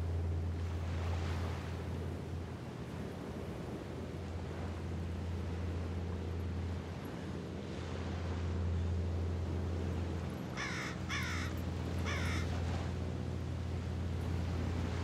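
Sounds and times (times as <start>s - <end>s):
water: 0.0s - 15.0s
wind: 0.0s - 15.0s
bird cawing: 10.6s - 12.6s.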